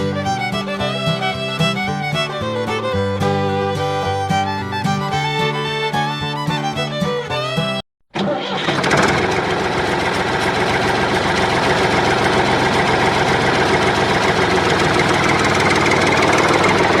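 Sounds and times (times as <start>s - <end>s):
tractor engine idling: 8.2s - 17.0s.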